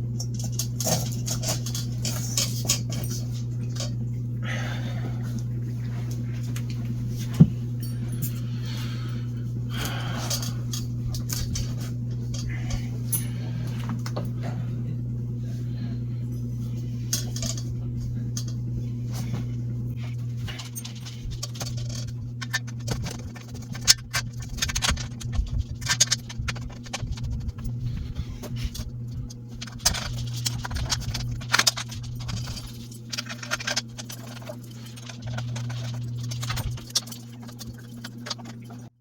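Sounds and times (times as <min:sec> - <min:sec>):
steady low hum: 0:00.0 - 0:39.0
metal hardware clinking and rattling: 0:17.1 - 0:17.7, 0:20.4 - 0:27.8, 0:28.7 - 0:38.6.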